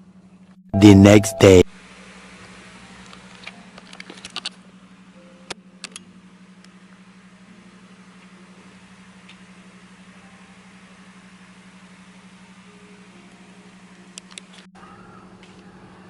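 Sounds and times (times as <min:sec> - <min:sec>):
vehicle cabin hum: 0:00.8 - 0:01.6.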